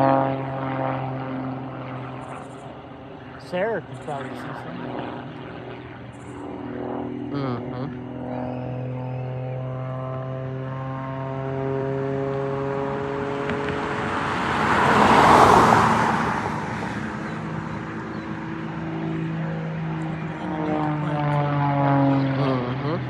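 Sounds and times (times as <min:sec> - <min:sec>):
propeller aircraft engine hum: 0:00.0 - 0:23.0
rushing pass-by noise: 0:12.6 - 0:18.1.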